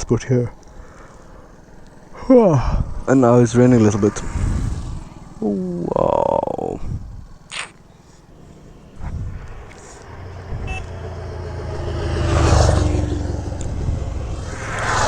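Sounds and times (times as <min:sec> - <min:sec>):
vehicle engine passing: 0:03.1 - 0:15.0.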